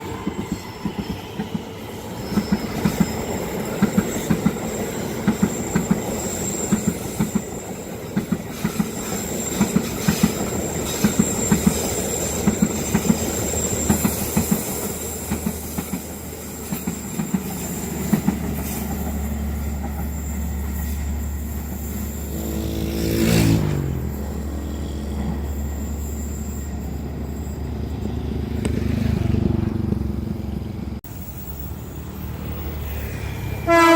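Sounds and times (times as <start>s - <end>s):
high wheel squeal: 0.0s - 29.6s, 30.4s - 33.9s
train wheels clicking over rail joints: 2.2s - 22.0s.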